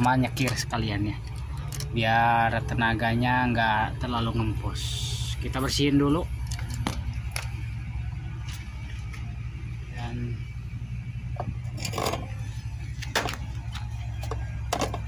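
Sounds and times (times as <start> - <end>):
metal parts clicking and scraping: 0.0 - 2.0, 6.4 - 7.5, 11.4 - 15.0
steady low hum: 0.0 - 15.0.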